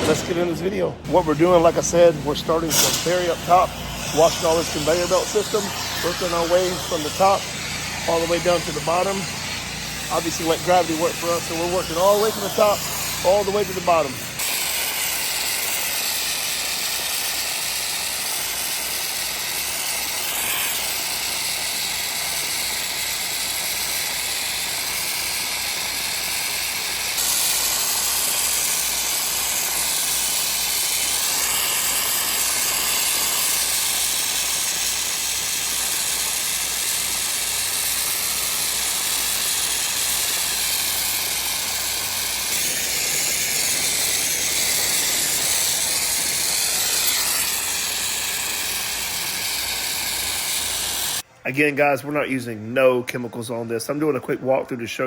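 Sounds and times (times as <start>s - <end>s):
pressure washer spraying water: 0.0s - 51.3s.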